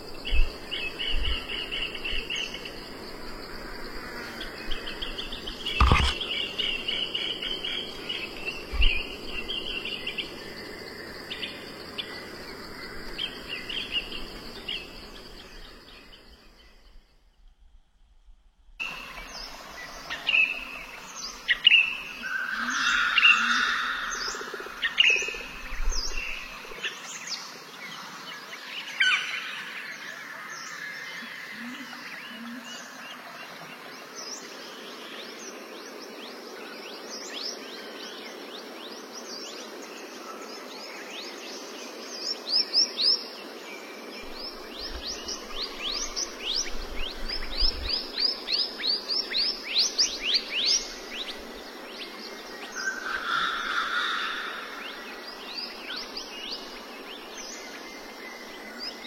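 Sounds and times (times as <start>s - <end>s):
steady outdoor noise: 0.0s - 59.0s
birds chirping: 0.2s - 17.0s.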